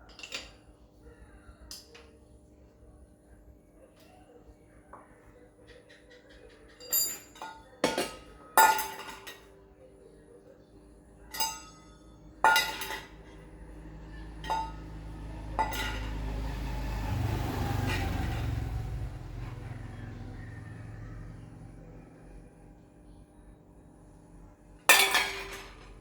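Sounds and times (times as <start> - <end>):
metallic clinks and knocks: 6.7 - 9.5, 14.4 - 16.4.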